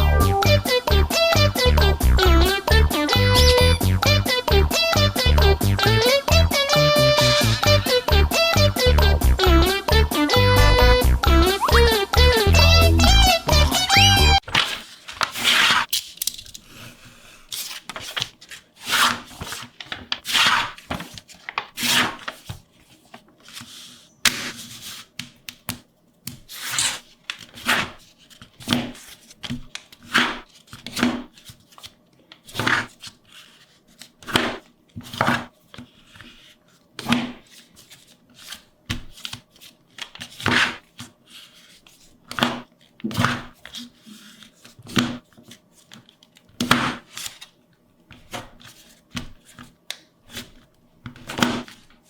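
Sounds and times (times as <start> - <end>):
paper rustling and rubbing: 14.5 - 15.9, 17.5 - 25.2, 26.5 - 47.5.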